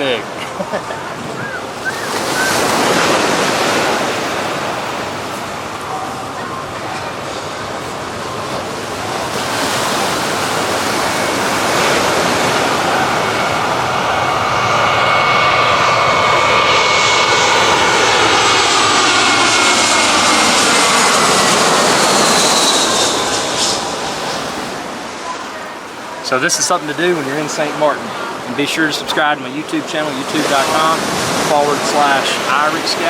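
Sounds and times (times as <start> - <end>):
jet airliner passing overhead: 0.0 - 33.0
jet engine whine: 0.0 - 33.0.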